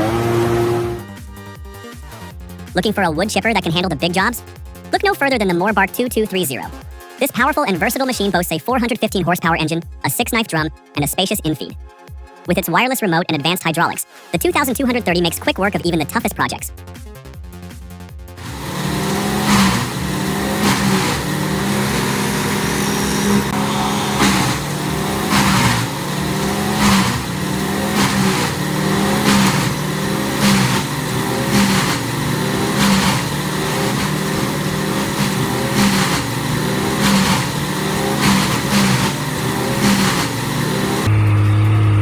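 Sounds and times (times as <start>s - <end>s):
machine engine running: 0.0s - 1.1s, 18.4s - 42.0s.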